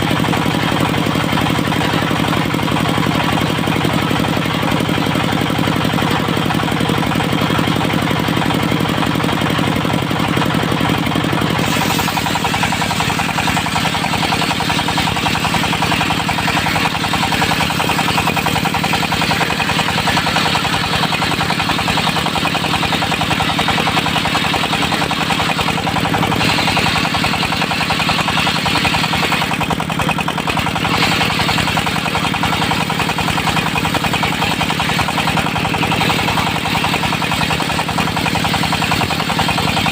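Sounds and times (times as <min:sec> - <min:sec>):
diesel engine running: 0:00.0 - 0:39.9
harsh hissing sound: 0:11.6 - 0:14.4.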